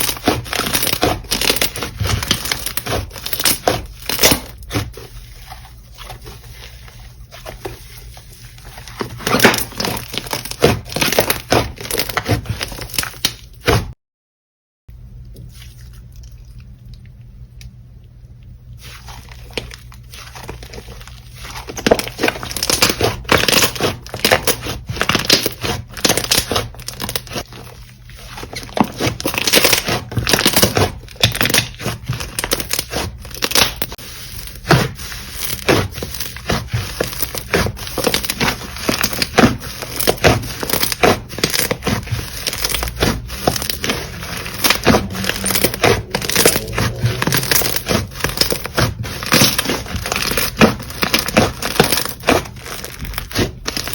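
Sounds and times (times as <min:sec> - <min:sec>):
slime crackling and popping: 0:00.0 - 0:05.1, 0:09.2 - 0:13.8, 0:18.8 - 0:53.9.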